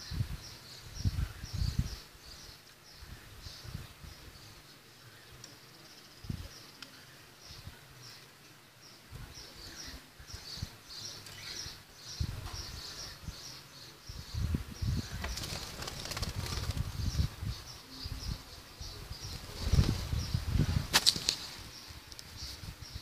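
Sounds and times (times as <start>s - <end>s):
small songbird chirping: 0.0s - 23.0s
wings flapping against mesh: 15.2s - 17.0s, 19.4s - 20.1s, 20.8s - 21.5s.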